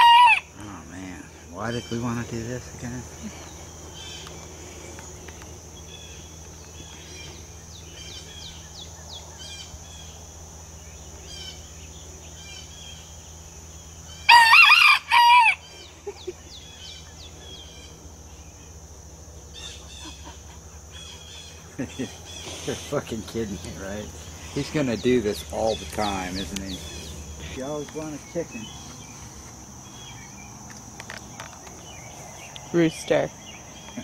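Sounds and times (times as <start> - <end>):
rooster crowing: 0.0 - 0.6, 14.1 - 15.9
steady high hum: 0.0 - 34.0.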